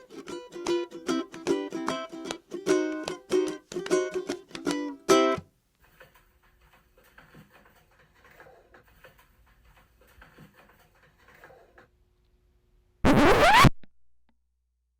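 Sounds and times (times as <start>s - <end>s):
ukulele music: 0.0s - 5.5s.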